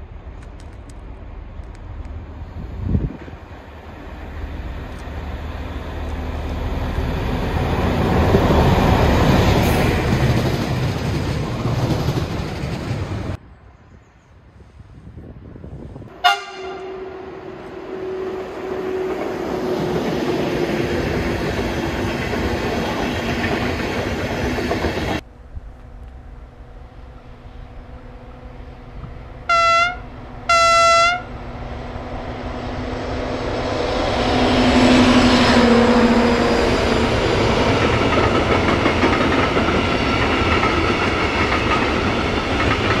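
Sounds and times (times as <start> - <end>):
train passing with rail noise: 0.0 - 43.0
wheels clickety-clack: 9.6 - 13.4, 36.8 - 43.0
diesel locomotive horn blasts: 16.1 - 19.1, 29.4 - 31.4
train horn: 16.1 - 19.1, 29.5 - 31.4
electric locomotive running: 16.8 - 43.0.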